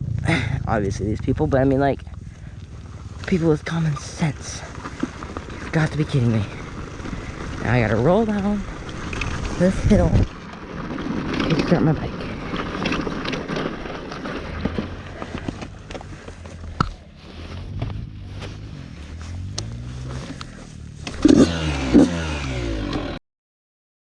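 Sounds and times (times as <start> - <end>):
dirt bike engine revving: 0.0 - 23.2
scraping and clicking: 8.3 - 17.1.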